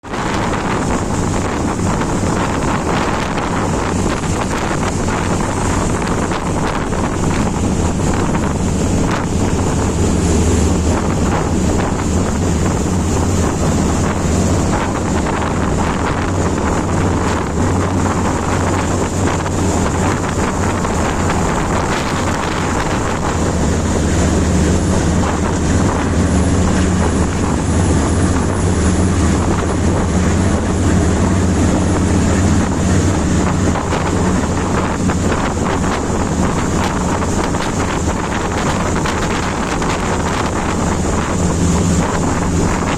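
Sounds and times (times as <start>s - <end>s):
boat engine droning: 0.0s - 42.9s.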